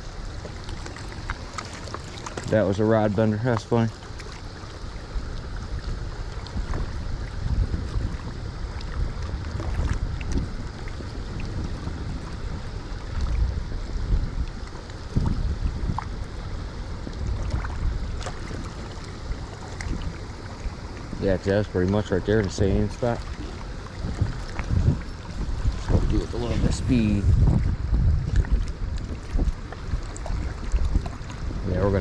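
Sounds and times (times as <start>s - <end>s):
river current over rocks: 0.0s - 7.8s, 16.2s - 27.8s
wind buffeting microphone: 4.5s - 32.0s.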